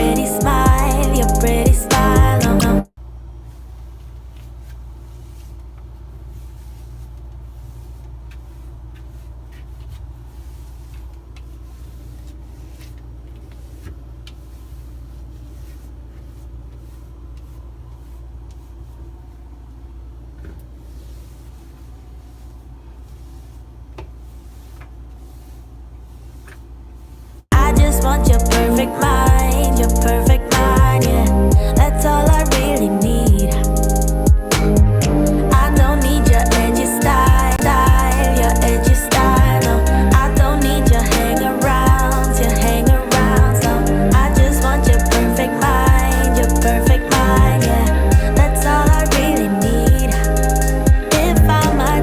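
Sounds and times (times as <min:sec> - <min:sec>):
steady low hum: 0:00.0 - 0:02.9, 0:27.5 - 0:52.0.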